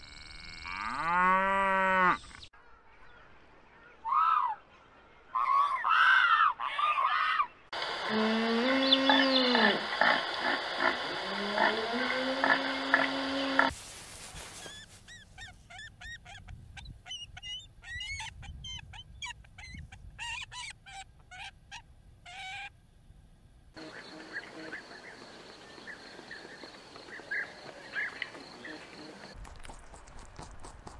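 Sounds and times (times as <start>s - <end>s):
eagle calling in high chirps: 14.6s - 22.7s.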